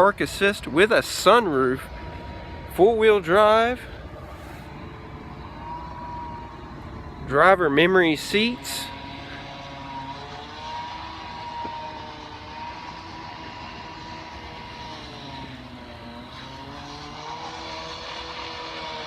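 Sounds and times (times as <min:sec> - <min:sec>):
engine drone with wavering tones: 0:00.0 - 0:19.0.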